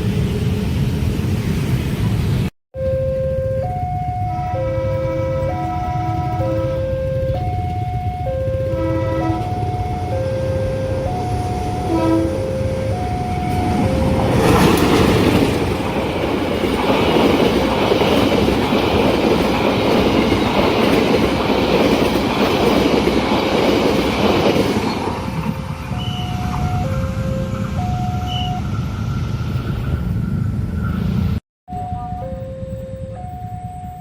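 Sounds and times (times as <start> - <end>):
train passing with wheel clatter: 0.0 - 34.0
two-tone level-crossing alarm: 2.8 - 15.4, 25.1 - 29.4, 31.7 - 34.0.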